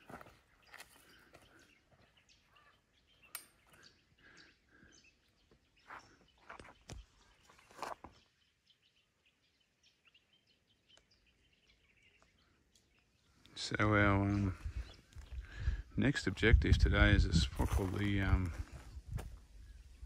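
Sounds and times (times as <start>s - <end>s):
faint bird calls: 0.0s - 15.8s.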